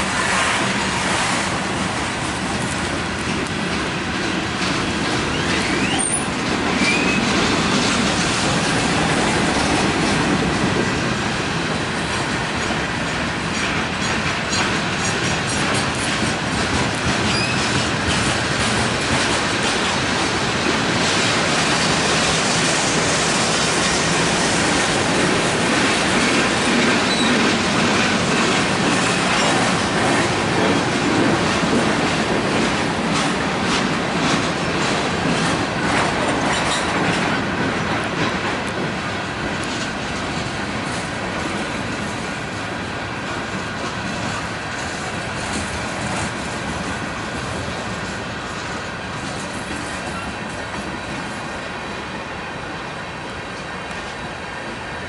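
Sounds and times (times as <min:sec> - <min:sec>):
freight train rumble: 0:00.0 - 0:55.0
wheels clacking over rail joints: 0:00.2 - 0:51.5
wheel squeals: 0:05.3 - 0:07.3, 0:17.3 - 0:17.7, 0:27.1 - 0:27.4.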